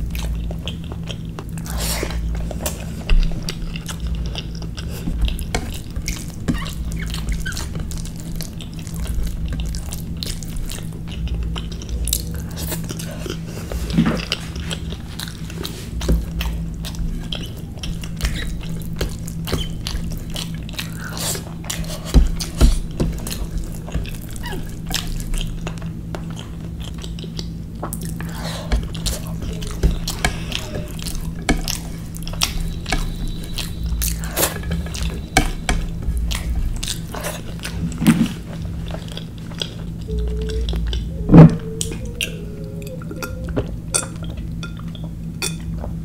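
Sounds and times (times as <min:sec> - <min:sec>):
steady low hum: 0:00.0 - 0:46.0
wet chewing and lip smacks: 0:14.2 - 0:37.8.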